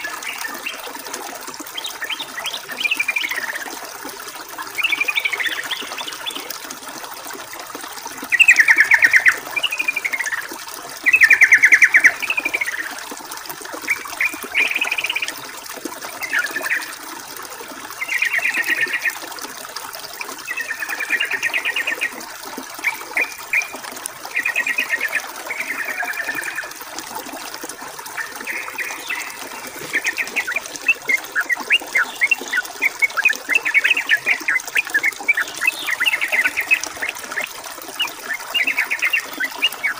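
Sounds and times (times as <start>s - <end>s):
running water: 0.0s - 39.9s
bulbul singing bubbly notes: 20.1s - 39.9s.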